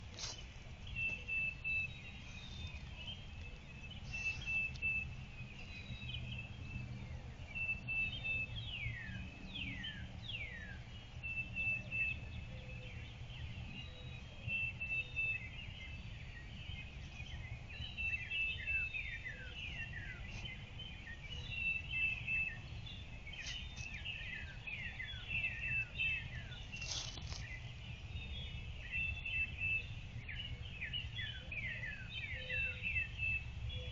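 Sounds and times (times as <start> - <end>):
low outdoor rumble: 0.0 - 33.9
bird trill: 13.8 - 33.9.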